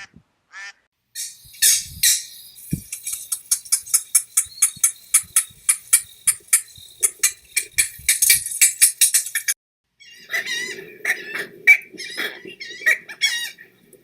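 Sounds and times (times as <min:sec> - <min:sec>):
bird calling in sharp high notes: 0:01.2 - 0:09.3.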